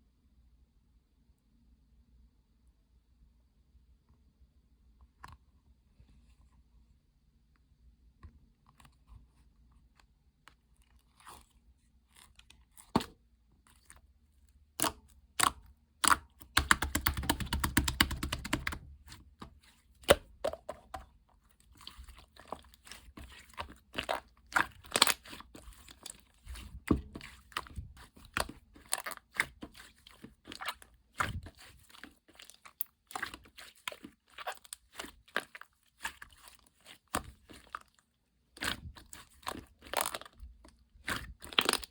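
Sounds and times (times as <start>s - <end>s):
slime squished by hand: 14.7s - 41.9s.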